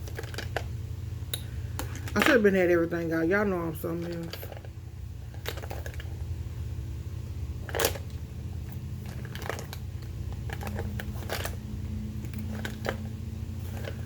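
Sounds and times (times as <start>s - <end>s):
steady low hum: 0.0s - 14.0s
makeup containers clicking: 5.3s - 6.1s.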